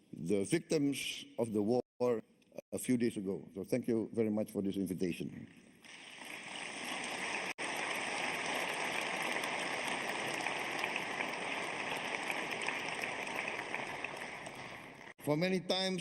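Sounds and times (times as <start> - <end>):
audience applauding: 6.2 - 15.2.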